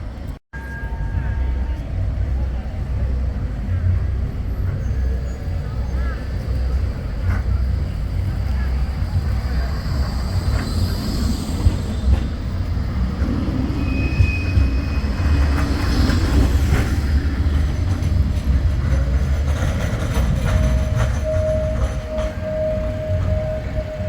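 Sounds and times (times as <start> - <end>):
tram running along track: 0.0 - 24.0
wheels clicking on rails: 6.5 - 24.0.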